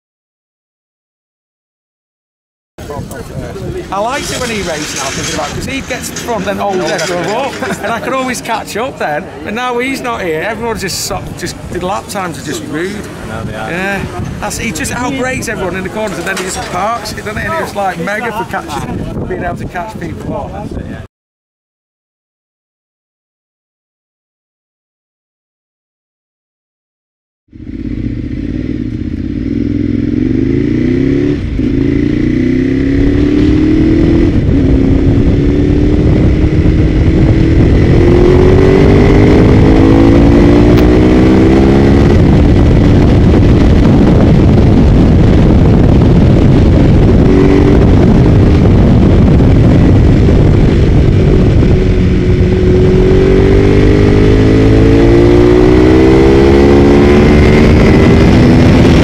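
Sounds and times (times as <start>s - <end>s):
motorcycle engine at full throttle: 2.8s - 9.4s, 27.5s - 59.0s.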